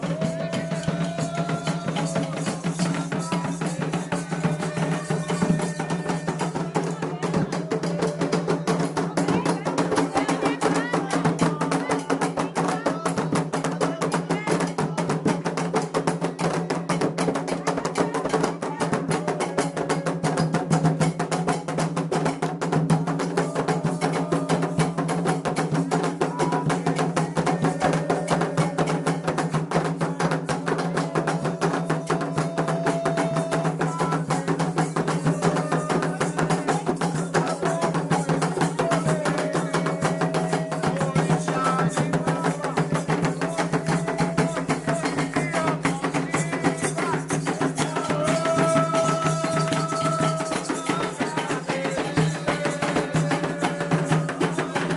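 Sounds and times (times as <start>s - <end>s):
hand drums: 0.0s - 54.9s.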